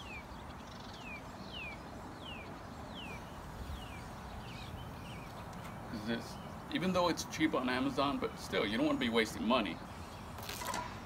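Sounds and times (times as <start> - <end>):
songbird whistling: 0.0 - 6.6
low background noise: 0.0 - 11.0.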